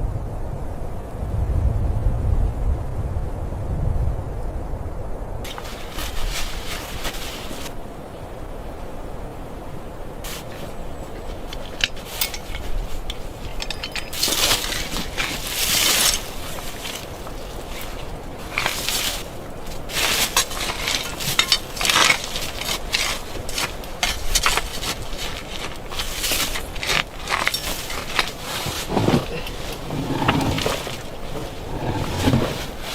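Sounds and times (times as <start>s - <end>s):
crunching and scraping: 5.5s - 7.8s, 10.2s - 32.9s
knocks and clinks: 11.2s - 17.0s, 19.9s - 24.8s, 25.9s - 32.9s.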